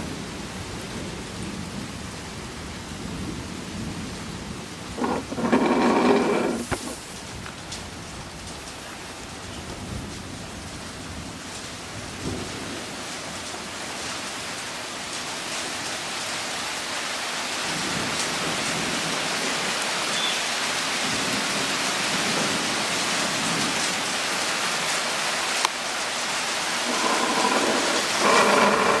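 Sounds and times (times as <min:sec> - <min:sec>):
steady rain: 0:00.0 - 0:04.8, 0:07.3 - 0:26.7.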